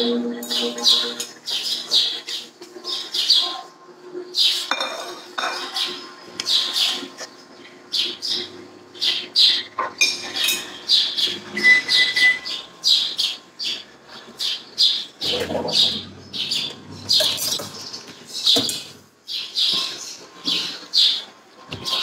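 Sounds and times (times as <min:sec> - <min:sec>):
bird chirping: 0:00.0 - 0:03.6, 0:05.8 - 0:21.3
dull low noise: 0:15.2 - 0:17.9.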